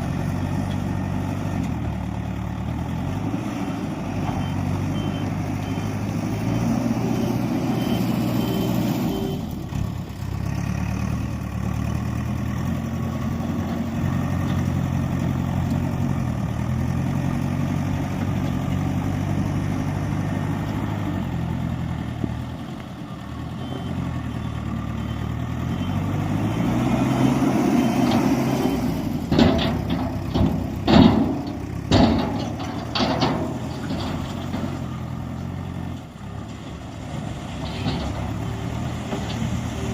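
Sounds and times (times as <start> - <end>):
heavy diesel engine revving: 24.6 - 36.0
sharp metal clanks and knocks: 29.3 - 35.0.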